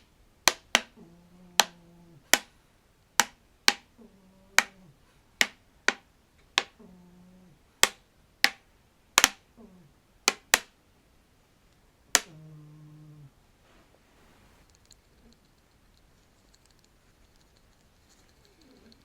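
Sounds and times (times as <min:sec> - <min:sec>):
plastic tube popping: 0:09.2 - 0:09.4.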